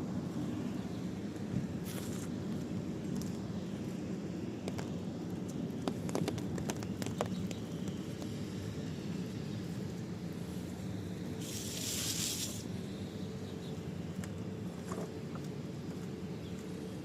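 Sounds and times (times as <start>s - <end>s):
brief high hiss: 11.4s - 12.7s.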